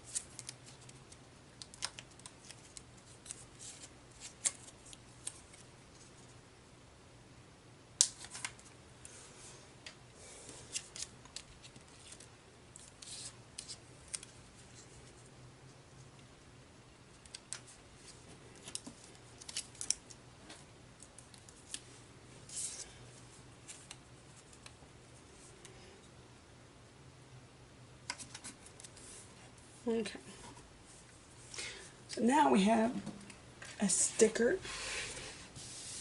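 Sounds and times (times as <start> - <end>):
paper clicks and snips: 0.1 - 5.4.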